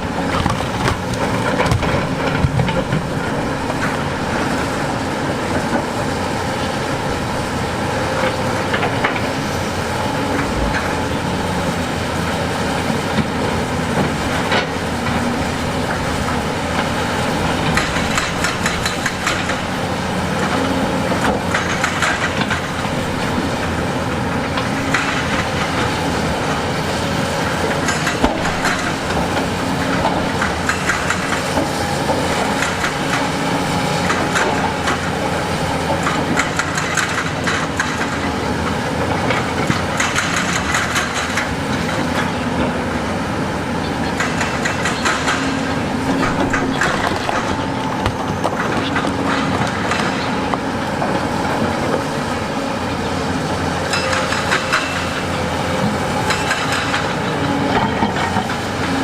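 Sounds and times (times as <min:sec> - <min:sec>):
diesel machinery running: 0:00.0 - 0:59.0
metal and stone clanking: 0:15.4 - 0:19.8, 0:53.9 - 0:58.6.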